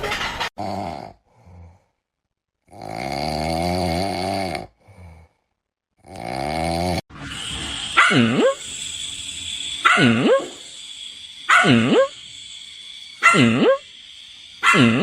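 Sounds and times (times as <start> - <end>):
dog barking: 8.0 - 8.6, 9.8 - 10.6, 11.5 - 12.2, 13.2 - 13.8, 14.6 - 15.0.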